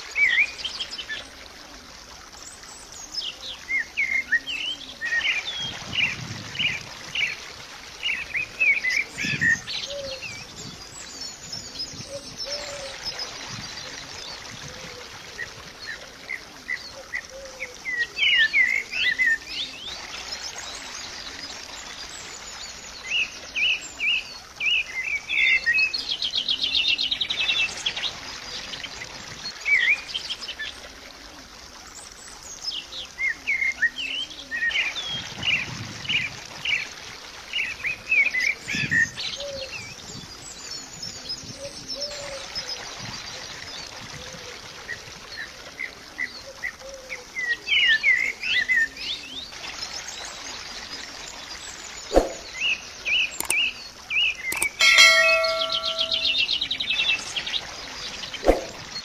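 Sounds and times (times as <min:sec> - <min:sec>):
soft steady wash: 0:00.0 - 0:59.0
birds chirping and singing: 0:51.8 - 0:59.0.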